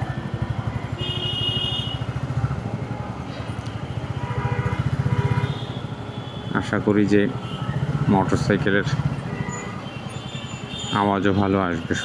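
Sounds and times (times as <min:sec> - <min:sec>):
motorcycle engine running: 0:00.0 - 0:03.2, 0:07.4 - 0:09.8.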